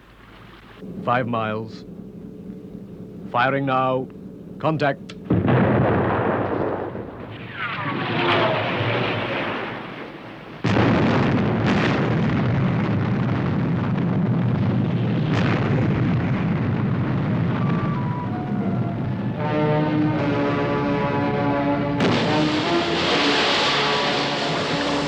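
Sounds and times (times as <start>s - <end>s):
huge explosion rumbling: 0.2s - 25.0s
missile whooshing and whistling: 6.8s - 10.7s, 17.3s - 19.4s, 20.0s - 25.0s.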